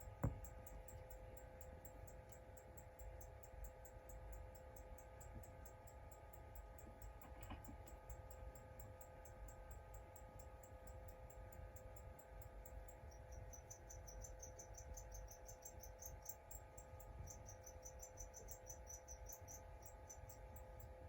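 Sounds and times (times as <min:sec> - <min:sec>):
quiet steady hum: 0:00.0 - 0:21.0.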